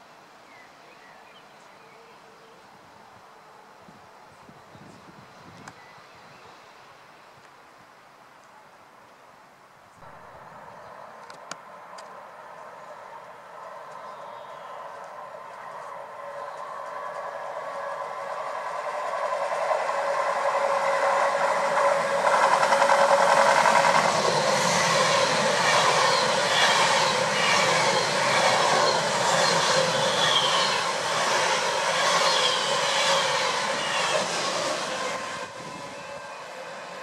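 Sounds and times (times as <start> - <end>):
wheel and rail noise: 10.0 - 37.0.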